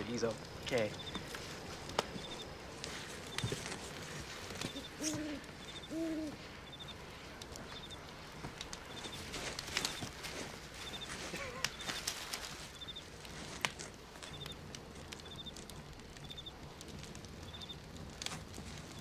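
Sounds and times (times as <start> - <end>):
night ambience: 0.0 - 19.0
owl hooting: 4.5 - 7.0
faint high chirp: 4.6 - 7.0, 7.7 - 8.0, 10.8 - 12.0, 12.7 - 13.0, 14.3 - 14.6, 17.4 - 17.8.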